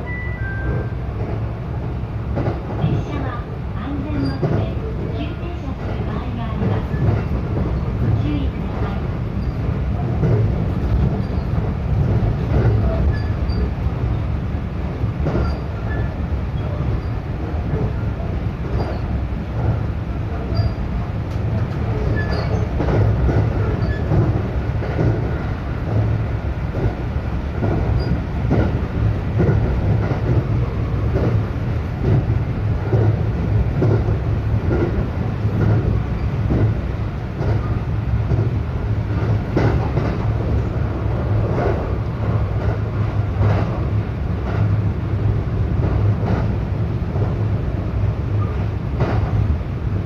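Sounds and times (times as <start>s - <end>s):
train rumble inside carriage: 0.0s - 50.0s.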